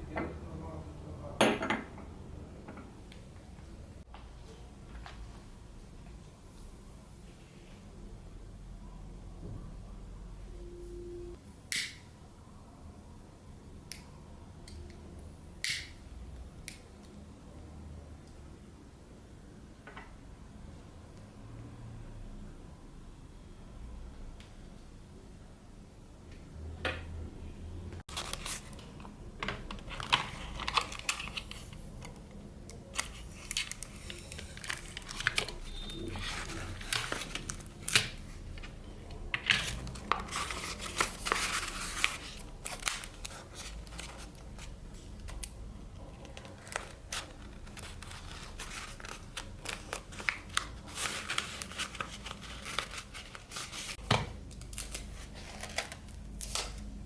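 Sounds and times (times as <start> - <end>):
paper crinkling: 28.1 - 38.7, 39.4 - 54.0, 54.6 - 56.8.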